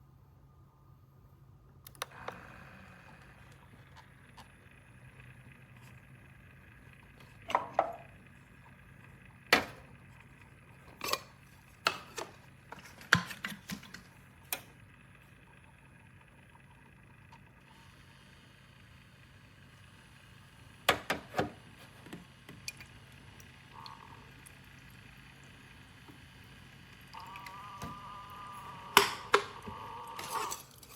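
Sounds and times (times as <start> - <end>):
low steady hum: 0.0 - 30.9.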